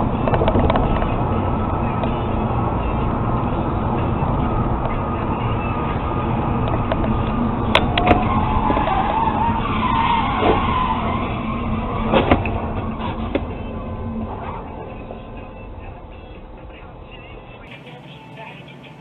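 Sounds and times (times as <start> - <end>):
road and engine noise: 0.0 - 19.0
wavering tyre squeal: 0.9 - 17.7.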